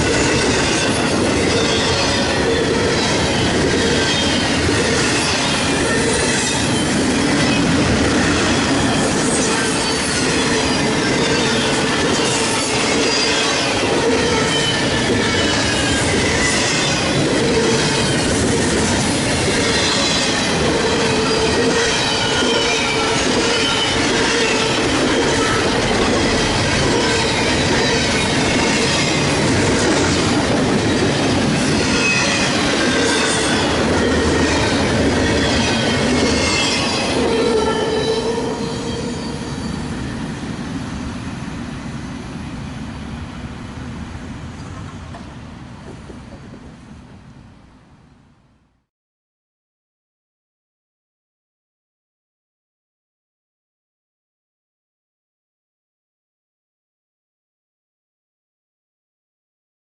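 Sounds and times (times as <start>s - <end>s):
freight train cars rolling past: 0.0s - 48.0s
high-pitched flange squeal: 19.5s - 29.3s, 30.0s - 40.0s.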